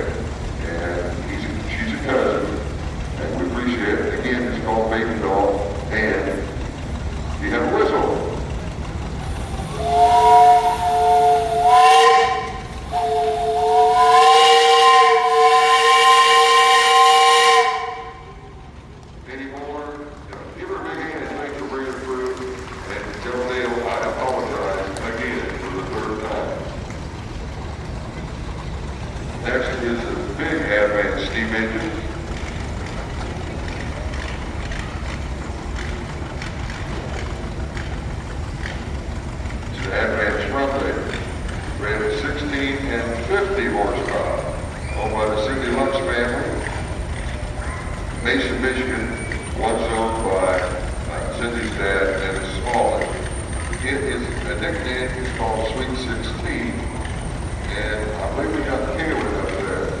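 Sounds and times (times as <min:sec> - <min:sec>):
steam traction engine running: 0:00.0 - 1:00.0
steam engine whistle blasts: 0:09.3 - 0:18.5.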